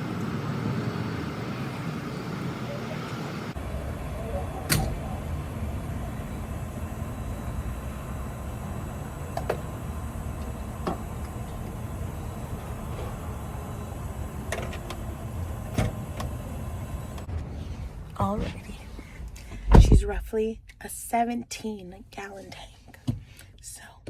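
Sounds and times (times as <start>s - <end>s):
car cabin rumble: 3.5s - 21.0s.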